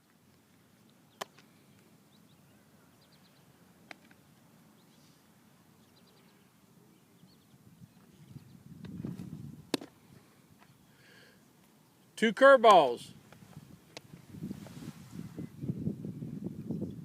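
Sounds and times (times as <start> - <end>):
faint bird chirps: 0.7 - 3.6, 4.7 - 8.6.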